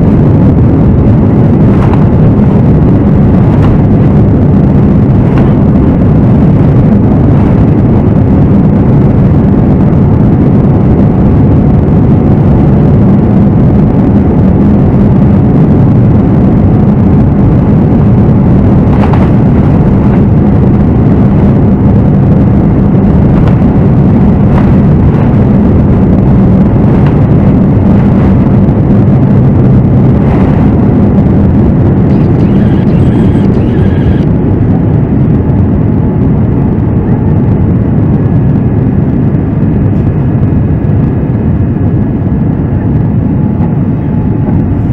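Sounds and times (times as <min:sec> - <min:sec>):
airplane cabin roar: 0:00.0 - 0:44.9.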